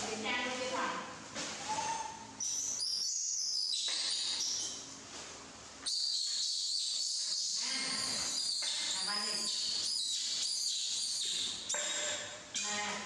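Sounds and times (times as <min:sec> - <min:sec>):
birds chirping and twittering: 0:01.7 - 0:04.9, 0:05.8 - 0:11.9.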